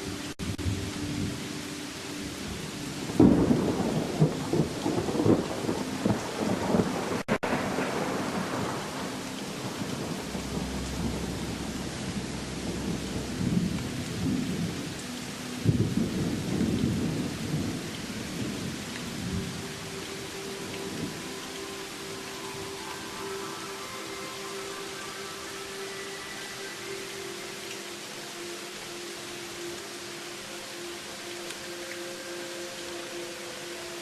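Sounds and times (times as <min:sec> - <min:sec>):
steady rain falling: 0:00.0 - 0:34.0
thunder rumbling: 0:02.4 - 0:23.6.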